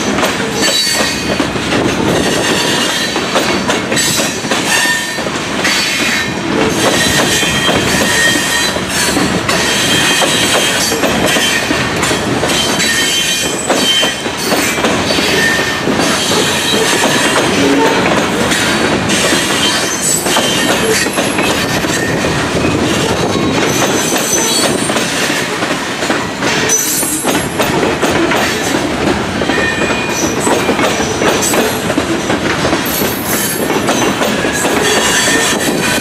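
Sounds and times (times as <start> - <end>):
train wheels clattering: 0.0 - 36.0
wheel squeals: 6.9 - 11.6, 32.9 - 36.0.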